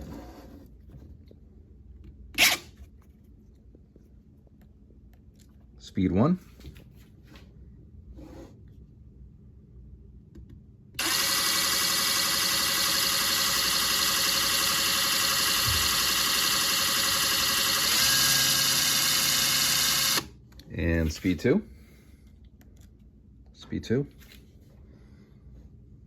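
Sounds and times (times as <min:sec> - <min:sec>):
impact driver motor whine: 0:11.0 - 0:20.3.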